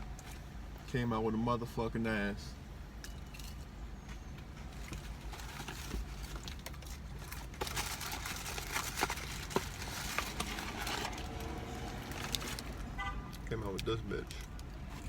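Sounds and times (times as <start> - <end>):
paper packaging rustling: 4.8 - 12.8.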